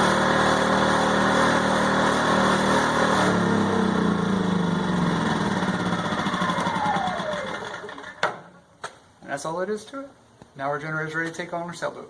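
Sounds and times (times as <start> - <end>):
engine spinning down: 0.0 - 8.2
generator engine running: 0.0 - 8.2.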